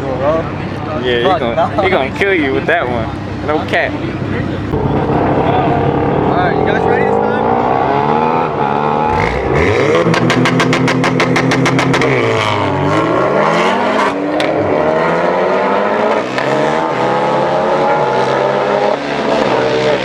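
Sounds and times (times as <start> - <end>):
race car engines accelerating: 0.0 - 20.0
rapid exhaust pops: 9.1 - 12.6.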